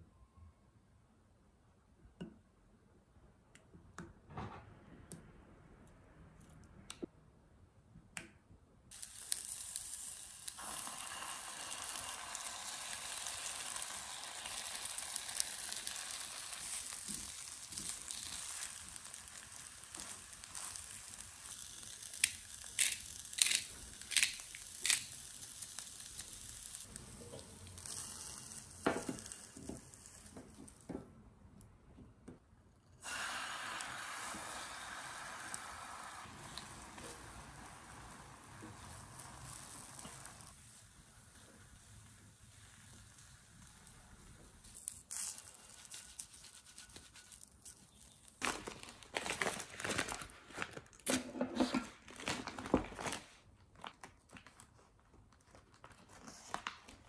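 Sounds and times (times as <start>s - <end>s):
vegetables sizzling in oil: 8.9s - 30.4s, 33.0s - 40.8s.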